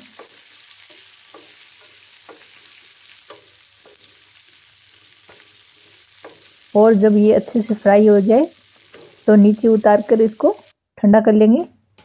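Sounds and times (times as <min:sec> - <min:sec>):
onions sizzling in oil: 0:00.0 - 0:10.8
wooden spatula scraping a pan: 0:08.6 - 0:09.8.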